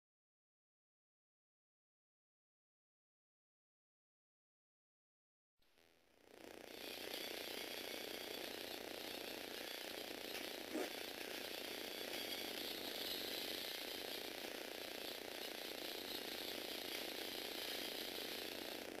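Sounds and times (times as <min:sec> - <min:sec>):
small electric motors whirring: 0:05.8 - 0:19.0.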